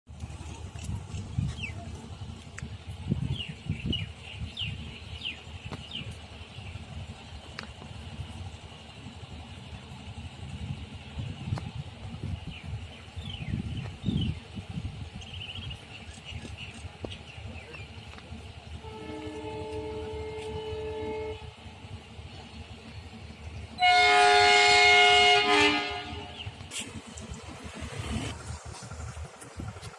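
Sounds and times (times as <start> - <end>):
low rumble: 0.1 - 29.9
train horn blasts: 18.7 - 21.7, 23.8 - 26.6.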